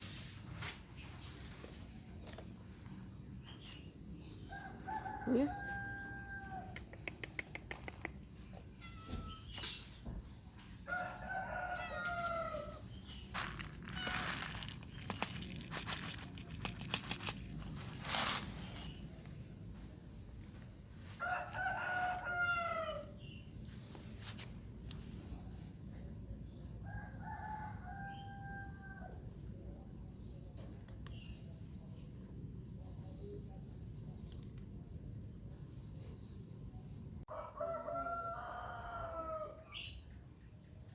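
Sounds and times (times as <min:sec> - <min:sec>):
rooster crowing: 0:04.5 - 0:06.8, 0:10.9 - 0:12.9, 0:21.1 - 0:23.2, 0:26.8 - 0:29.2, 0:37.3 - 0:39.8.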